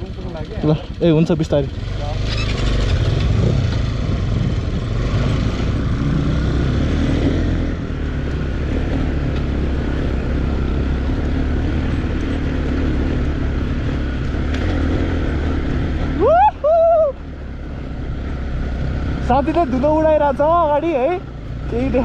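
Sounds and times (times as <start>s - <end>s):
dirt bike engine running: 0.0s - 16.2s.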